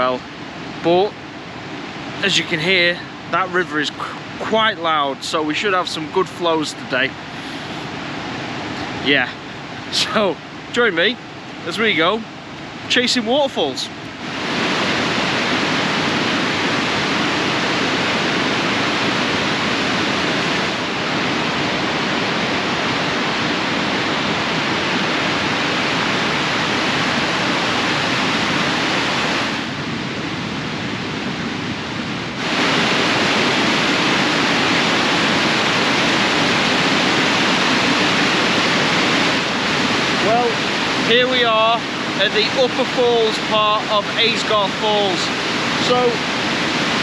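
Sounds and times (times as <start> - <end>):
water rushing over falls: 0.0 - 47.0.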